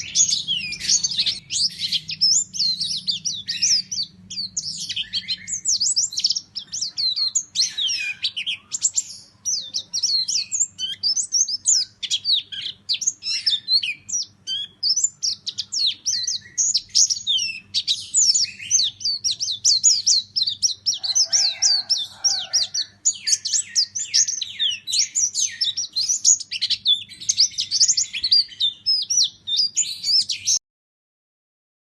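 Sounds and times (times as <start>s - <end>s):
bird chirping and trilling: 0.0s - 30.6s.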